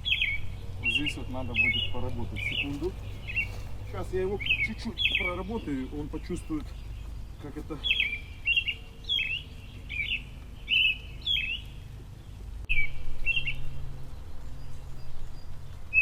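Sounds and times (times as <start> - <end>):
songbird chirping: 0.0 - 16.0
low rumble: 11.8 - 16.0.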